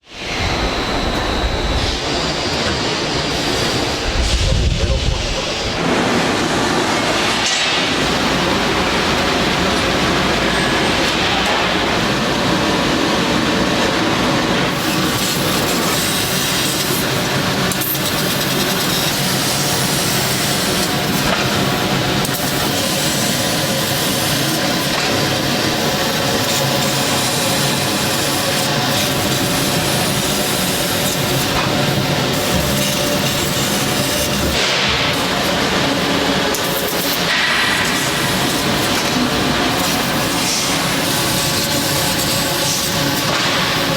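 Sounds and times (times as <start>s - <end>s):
factory machinery noise: 0.0s - 43.9s.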